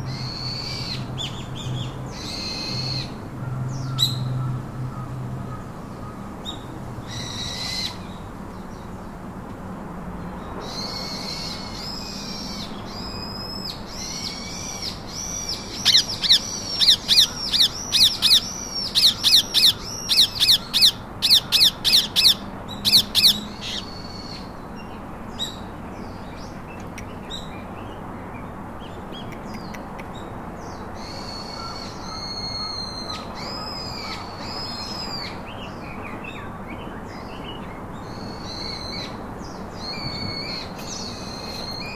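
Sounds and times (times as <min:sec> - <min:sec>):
parakeets chattering: 0:14.0 - 0:24.4.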